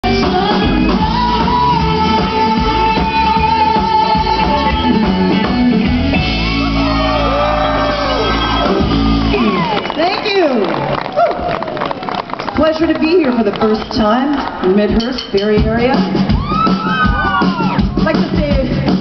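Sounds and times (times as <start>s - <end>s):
person singing: 0.0s - 5.9s
live band playing amplified music: 0.0s - 19.0s.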